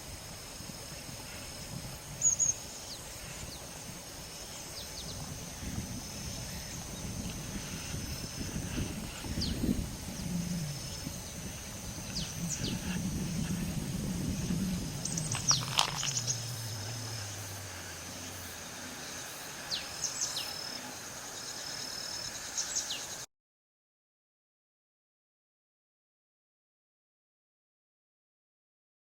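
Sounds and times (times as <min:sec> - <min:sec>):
high insect trill: 0:00.0 - 0:23.3
distant engine droning: 0:05.3 - 0:21.3
birds chirping: 0:09.2 - 0:23.2.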